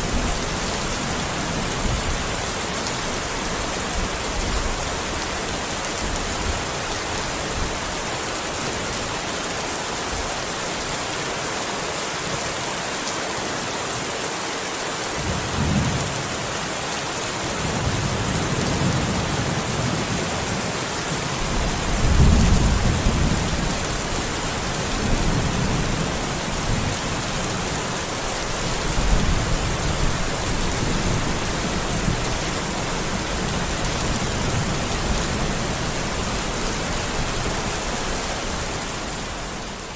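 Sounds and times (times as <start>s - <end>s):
heavy rain hissing: 0.0s - 39.9s
thunder rumbling: 21.5s - 24.0s.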